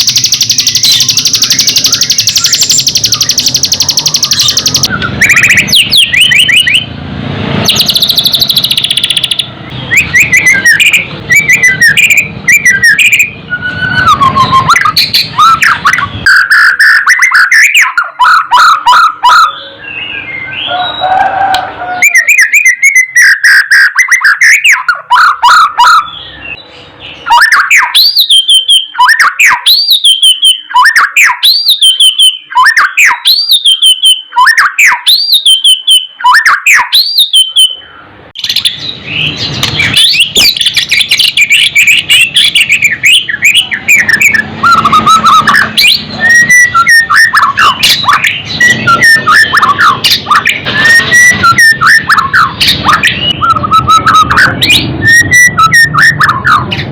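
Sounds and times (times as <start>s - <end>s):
bird singing whistles and trills: 0.0s - 6.9s, 7.6s - 56.9s.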